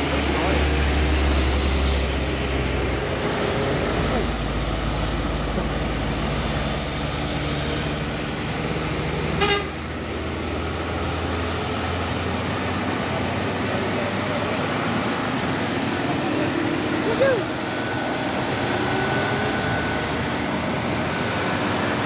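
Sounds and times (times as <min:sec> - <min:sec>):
heavy truck engine drone: 0:00.0 - 0:22.0
truck horn toot: 0:09.3 - 0:09.8.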